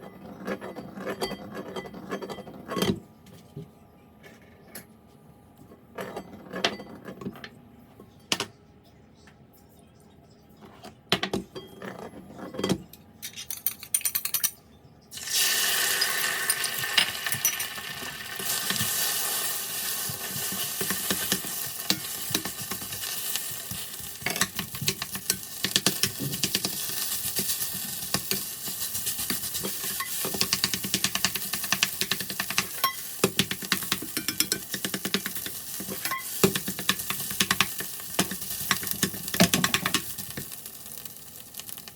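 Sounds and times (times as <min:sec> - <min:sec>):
utensils and dishes clinking: 0:00.0 - 0:03.0, 0:10.6 - 0:40.6
food sizzling in hot oil: 0:15.1 - 0:41.9.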